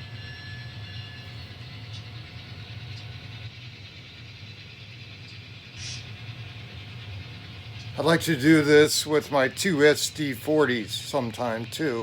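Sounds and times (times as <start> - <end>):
faint high whine: 0.0 - 12.0
model train running on track: 0.0 - 12.0
hiss: 5.8 - 6.1.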